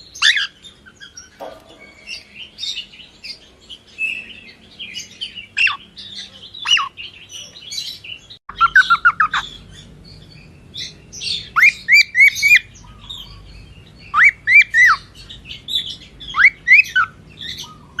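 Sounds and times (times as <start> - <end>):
cockatiel chirping: 8.5 - 9.7.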